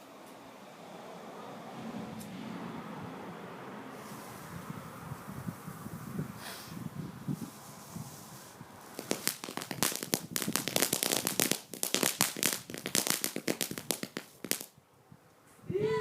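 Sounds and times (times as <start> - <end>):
firework crackling: 3.9 - 14.7.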